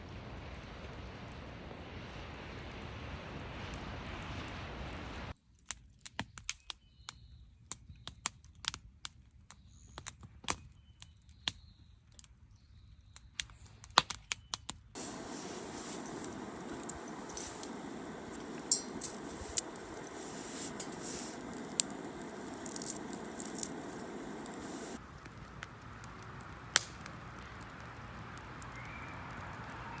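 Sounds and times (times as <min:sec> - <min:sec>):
wood fire crackling: 0:00.0 - 0:05.0, 0:15.0 - 0:30.0
steady hiss of burning: 0:00.0 - 0:05.4, 0:15.0 - 0:30.0.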